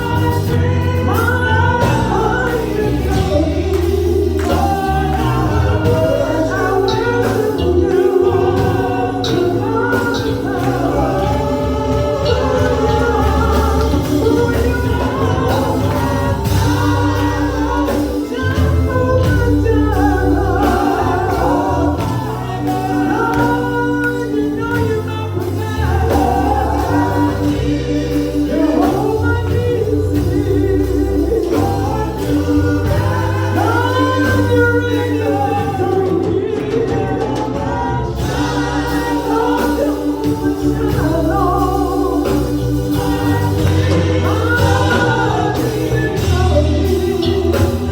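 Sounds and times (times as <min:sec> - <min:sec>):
bass line: 0:00.0 - 0:47.9
gospel choir singing: 0:00.0 - 0:47.9
organ-like chords: 0:00.0 - 0:47.9.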